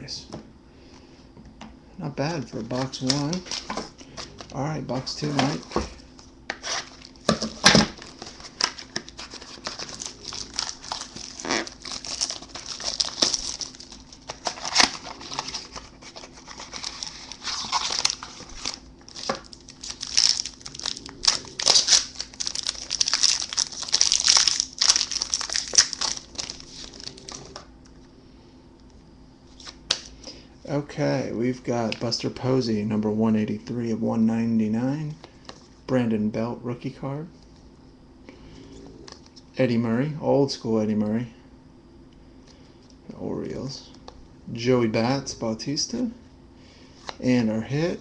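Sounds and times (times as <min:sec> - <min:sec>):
wrappers crinkling and tearing: 0:02.6 - 0:05.8, 0:06.6 - 0:27.6.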